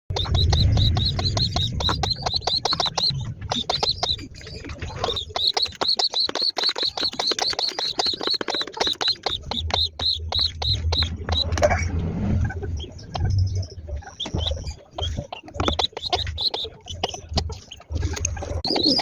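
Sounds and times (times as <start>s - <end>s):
baby pigeon begging peeps: 0.1s - 11.8s, 12.4s - 19.0s
low rumbling noise: 9.5s - 18.6s.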